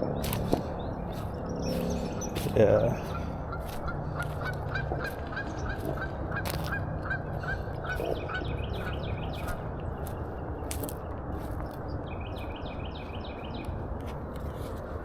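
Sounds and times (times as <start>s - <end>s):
bird calling in rapid notes: 0.0s - 9.6s
outdoor background noise: 0.0s - 15.0s.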